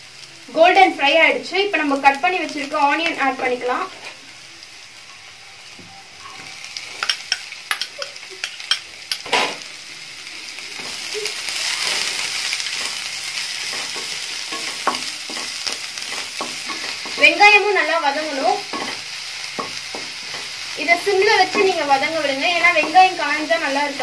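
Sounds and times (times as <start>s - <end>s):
vegetables sizzling in oil: 0.0s - 24.0s
spatula scraping and tapping pan: 6.2s - 9.5s, 12.6s - 17.6s, 18.7s - 23.2s.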